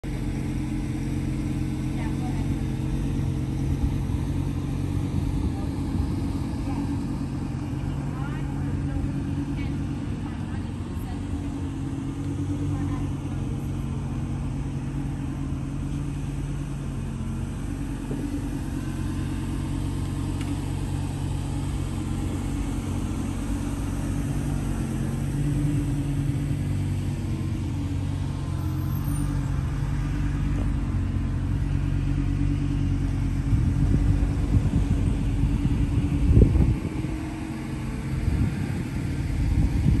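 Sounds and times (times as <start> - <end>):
car engine idling: 0.0 - 40.0
wind buffeting microphone: 3.6 - 7.6, 33.2 - 40.0.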